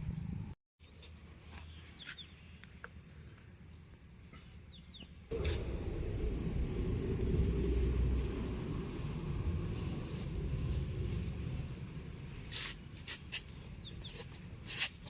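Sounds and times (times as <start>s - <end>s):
low vehicle engine rumble: 5.3s - 14.6s.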